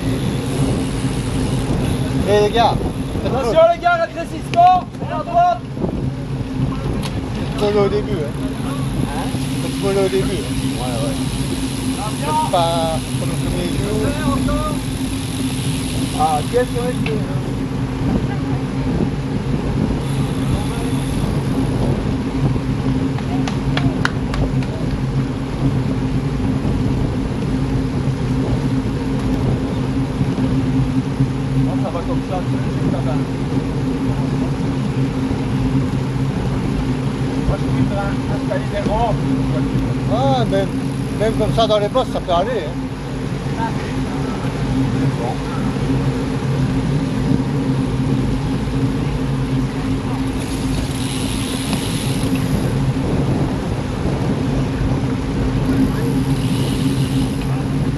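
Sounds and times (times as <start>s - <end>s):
wind rushing: 0.0s - 31.6s, 32.4s - 57.9s
low steady hum: 0.0s - 57.9s
road noise: 0.0s - 57.9s
vehicle engine running: 0.0s - 57.9s
hiss: 56.4s - 57.4s.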